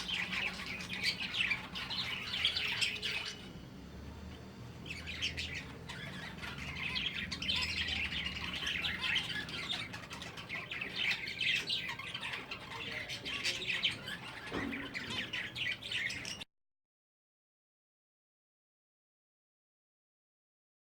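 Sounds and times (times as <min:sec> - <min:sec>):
finches chirping: 0:00.0 - 0:16.4.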